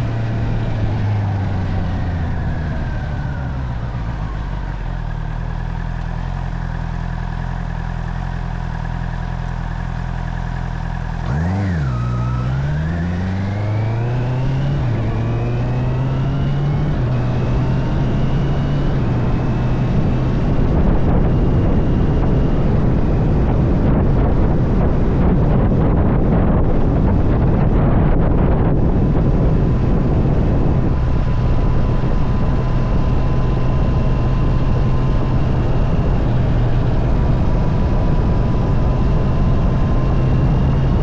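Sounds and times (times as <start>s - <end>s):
motorcycle engine revving and accelerating: 0.0s - 41.0s
wind noise: 9.7s - 41.0s.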